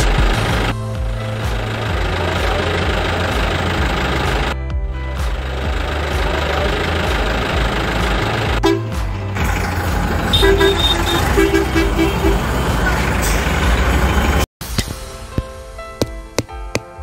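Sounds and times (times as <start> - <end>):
vehicle engine running: 0.0 - 14.5
music with a beat: 4.3 - 7.3, 8.5 - 9.4
horn honking: 8.6 - 14.1.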